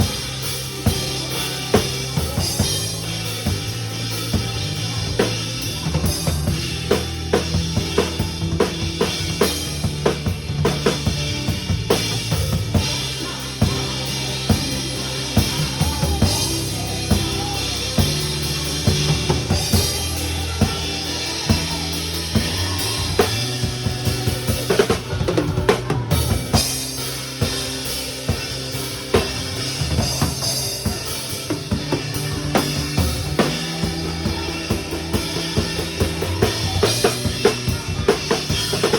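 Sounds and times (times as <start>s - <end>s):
backing track bass and keyboard: 0.0s - 38.9s
drum kit playing: 0.0s - 38.9s.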